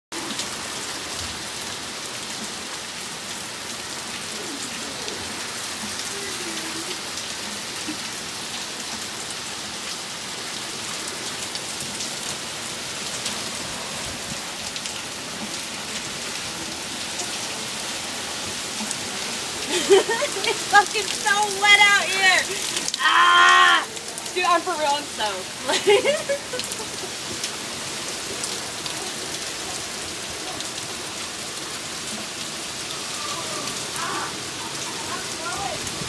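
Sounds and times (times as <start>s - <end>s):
heavy rain downpour: 0.1s - 36.0s
raindrops ticking: 14.6s - 32.6s.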